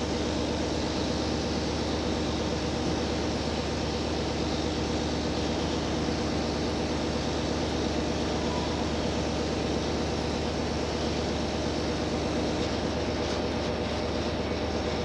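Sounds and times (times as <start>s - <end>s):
railcar engine hum: 0.0s - 15.0s
wheel and rail rumble: 12.0s - 15.0s.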